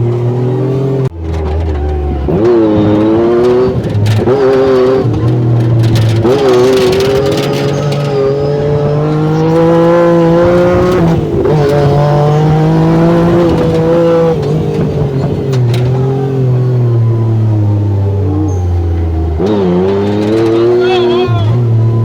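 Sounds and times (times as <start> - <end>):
engine pulling under load: 0.0 - 22.0.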